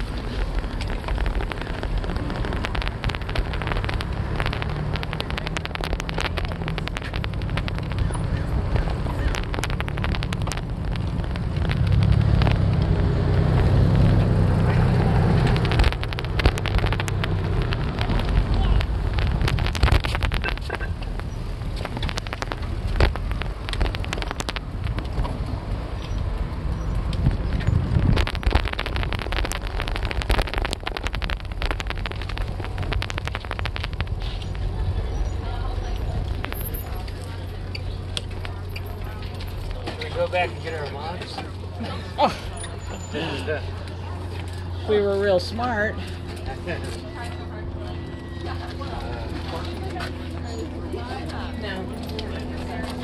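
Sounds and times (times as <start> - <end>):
wind buffeting microphone: 0.0 - 38.9
small clicks and rattles: 0.0 - 40.5.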